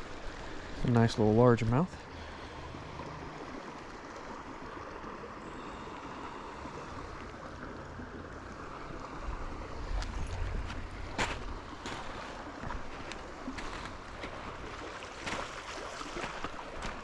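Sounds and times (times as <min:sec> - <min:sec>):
running creek water: 0:00.0 - 0:17.0
wind rumble on microphone: 0:09.0 - 0:14.7.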